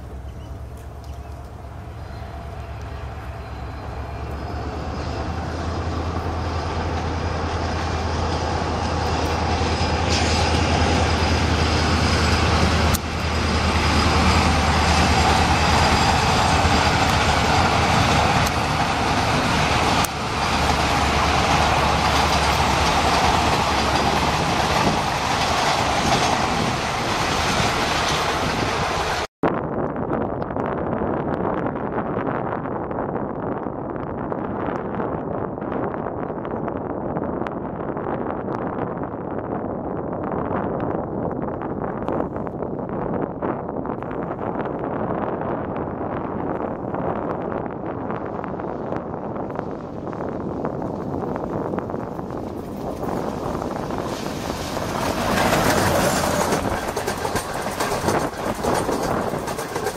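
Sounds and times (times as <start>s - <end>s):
diesel engine drone: 0.0s - 25.5s
train wheels rumbling: 0.0s - 29.3s, 41.0s - 59.9s.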